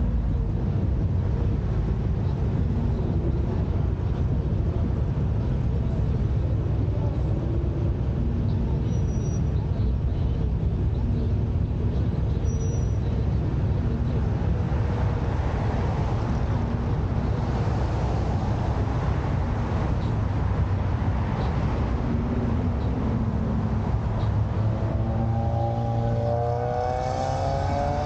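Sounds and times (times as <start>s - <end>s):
car engines idling: 0.0s - 28.0s
traffic noise: 0.0s - 28.0s.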